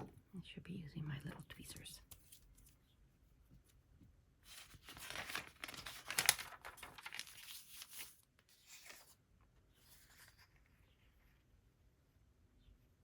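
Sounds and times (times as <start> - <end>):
paper rustling and crinkling: 4.4 - 11.0.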